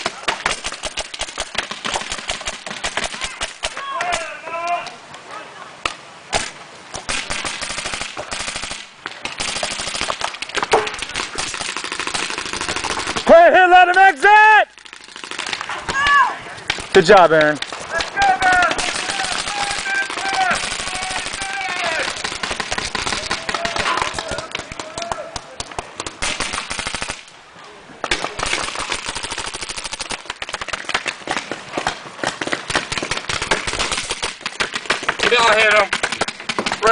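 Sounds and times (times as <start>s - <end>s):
paintball markers firing: 0.0s - 4.2s, 14.8s - 27.2s, 28.0s - 36.9s.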